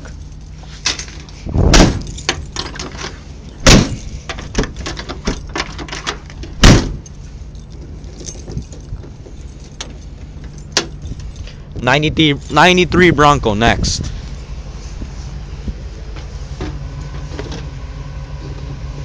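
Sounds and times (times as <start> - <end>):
engine idling: 0.0 - 19.0
loud thuds: 1.6 - 2.5, 3.6 - 5.5, 6.6 - 7.1
light clinks and clicks: 2.0 - 11.8.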